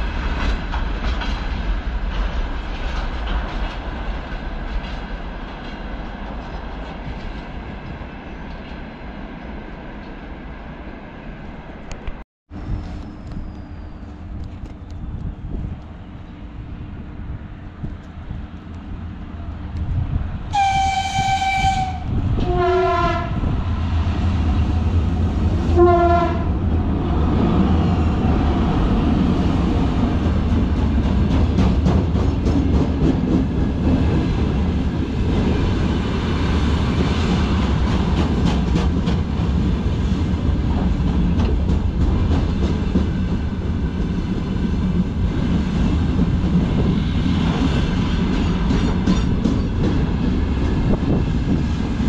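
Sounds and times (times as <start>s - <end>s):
train wagons rumbling past: 0.0s - 52.0s
wheels clacking over rail joints: 0.1s - 8.9s, 36.9s - 44.2s
locomotive horn blasts: 20.5s - 23.5s, 25.7s - 26.5s.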